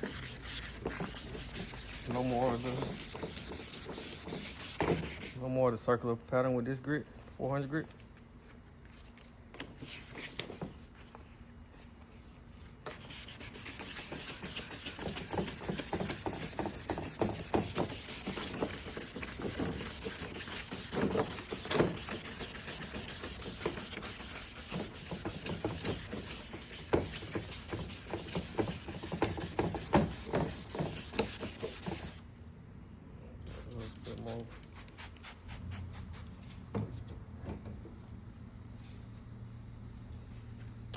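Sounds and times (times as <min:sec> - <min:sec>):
sandpaper rasping on plastic: 0:00.0 - 0:05.4, 0:12.8 - 0:32.2, 0:33.5 - 0:36.3.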